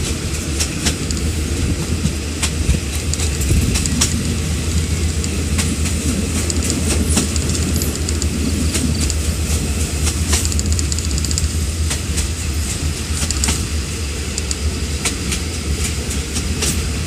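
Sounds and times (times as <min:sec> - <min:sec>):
train wheels rumbling on rail: 0:00.0 - 0:17.0
sharp clicks: 0:00.8 - 0:01.3, 0:02.4 - 0:04.4, 0:05.0 - 0:09.3, 0:10.0 - 0:12.3, 0:13.2 - 0:13.7, 0:14.3 - 0:14.6.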